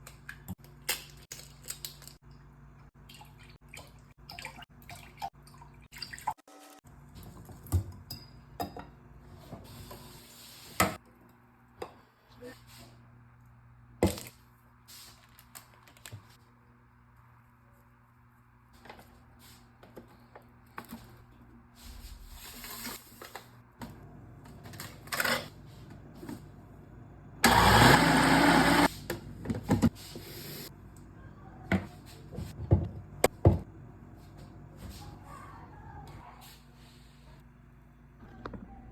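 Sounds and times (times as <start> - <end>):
small electric motor running: 27.4 - 28.9.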